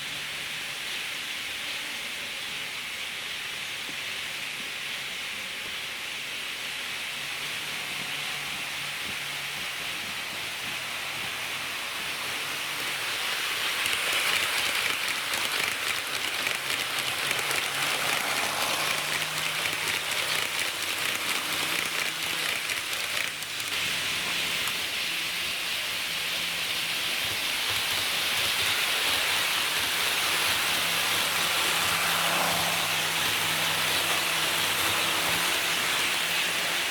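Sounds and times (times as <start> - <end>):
model train wheels hissing on rail: 0.0 - 36.9
fine clicking: 13.7 - 23.8.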